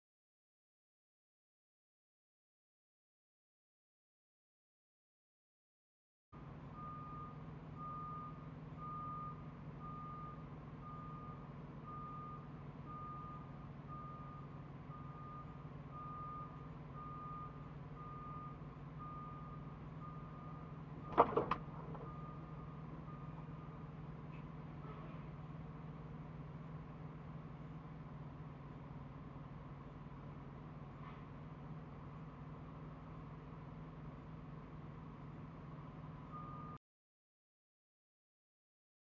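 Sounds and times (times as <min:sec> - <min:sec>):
engine drone: 0:06.4 - 0:36.8
reversing alarm beeps: 0:06.8 - 0:23.9, 0:36.2 - 0:36.8
sharp knocks: 0:21.1 - 0:22.1.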